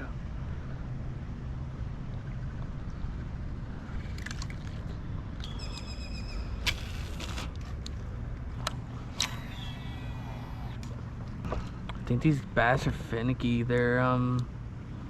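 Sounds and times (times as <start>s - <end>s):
low rumble: 0.0s - 15.0s
bird call: 5.4s - 7.2s, 9.3s - 10.4s.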